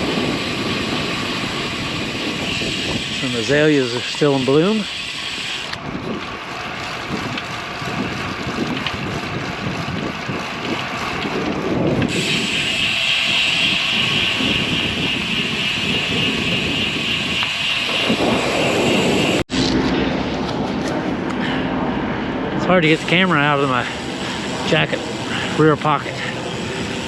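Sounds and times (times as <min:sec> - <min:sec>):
wind on microphone: 0:00.0 - 0:03.6, 0:07.0 - 0:23.2
bicycle road noise: 0:00.0 - 0:27.0.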